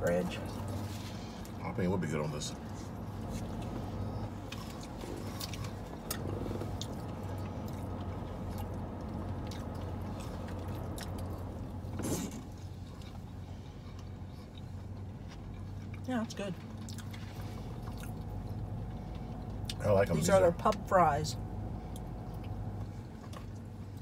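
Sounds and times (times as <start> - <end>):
car low hum: 0.0 - 24.0
people chewing fries: 2.6 - 20.3.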